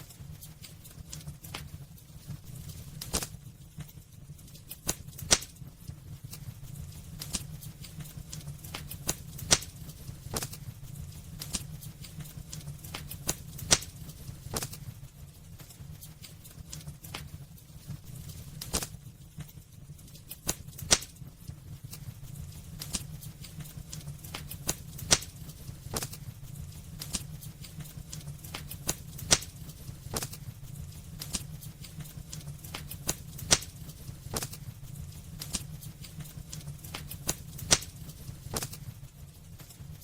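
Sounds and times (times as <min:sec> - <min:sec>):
wood fire crackling and popping: 0:00.0 - 0:40.0.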